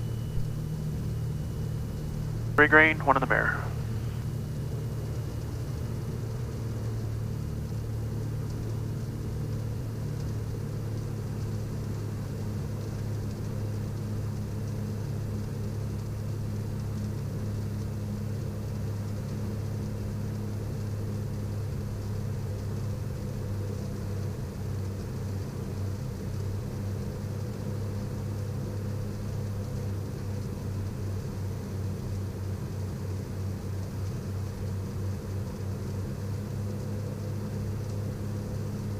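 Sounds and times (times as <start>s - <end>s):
propeller engines droning: 0.0s - 10.6s.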